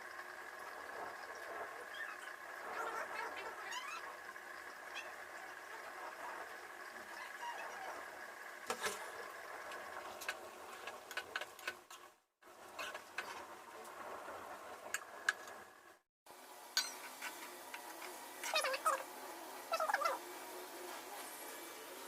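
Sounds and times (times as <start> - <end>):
utensils clinking against cookware: 16.8 - 17.5.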